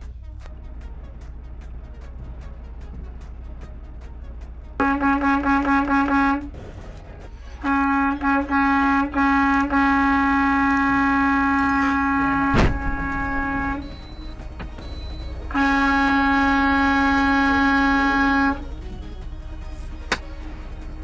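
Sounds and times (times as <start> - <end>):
low steady rumble: 0.0 - 21.0
vehicle horn honking: 4.8 - 6.6, 7.6 - 18.7.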